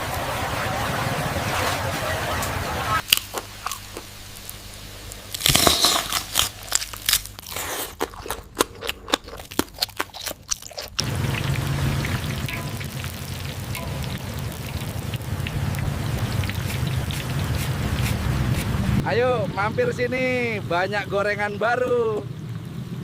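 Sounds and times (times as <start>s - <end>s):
steady hiss: 3.0s - 6.7s
crunching fried fritters: 3.0s - 19.0s
low hum: 11.0s - 19.9s.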